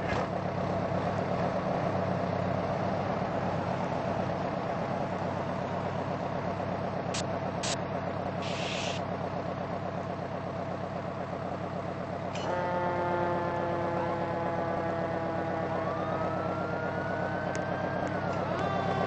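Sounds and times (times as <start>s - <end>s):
fire truck engine running: 0.0s - 19.0s
short hiss: 8.4s - 9.0s
truck horn chord: 12.4s - 15.2s.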